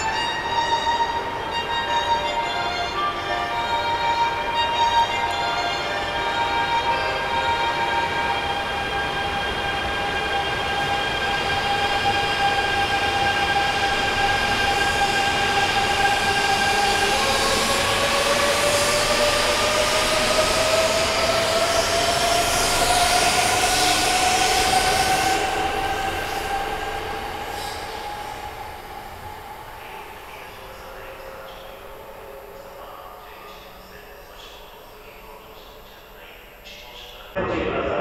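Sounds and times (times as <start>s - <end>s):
train electric whine: 0.0s - 37.9s
train running noise: 0.0s - 38.0s.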